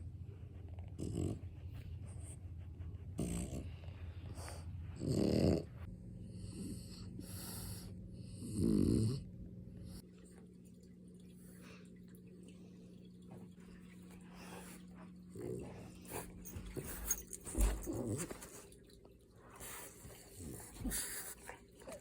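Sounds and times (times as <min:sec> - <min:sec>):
dog snoring: 0:00.9 - 0:01.8, 0:03.2 - 0:09.3.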